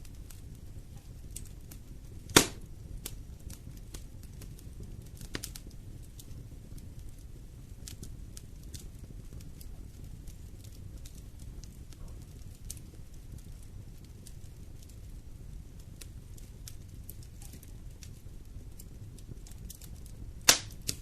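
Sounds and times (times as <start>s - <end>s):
wood fire crackling: 0.0s - 21.0s
sharp loud fire pop: 2.3s - 2.7s, 20.5s - 20.8s.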